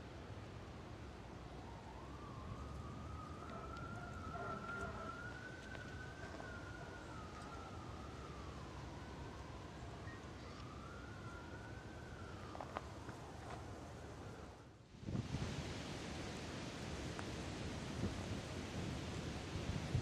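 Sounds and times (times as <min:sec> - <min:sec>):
distant siren wailing: 0:01.0 - 0:14.7.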